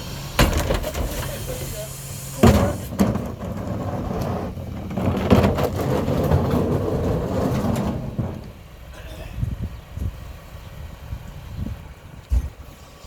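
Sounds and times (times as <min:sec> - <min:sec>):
garbage truck diesel engine: 0:00.0 - 0:13.0
metal clanks and knocks: 0:00.4 - 0:01.5, 0:02.4 - 0:09.1.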